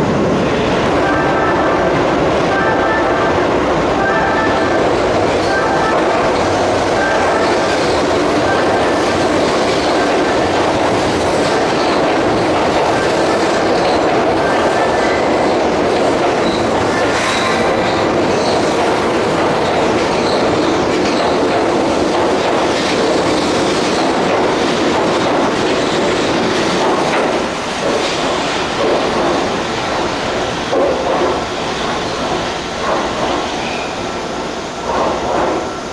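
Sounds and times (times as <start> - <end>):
train wheels clattering over rail joints: 5.9 - 33.9.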